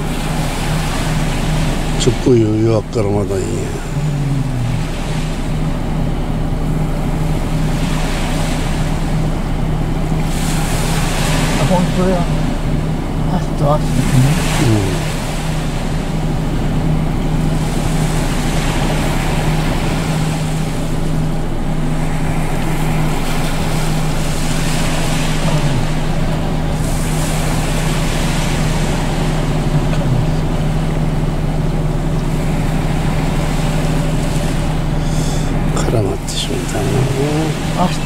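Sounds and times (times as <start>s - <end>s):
constant wash of noise: 0.0s - 38.0s
low engine-like hum: 0.0s - 38.0s.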